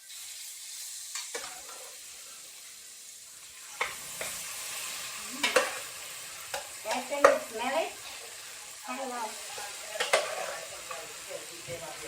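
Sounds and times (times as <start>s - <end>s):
chicken sizzling in hot oil: 0.0s - 12.0s
spoon knocking against pot: 6.5s - 7.5s.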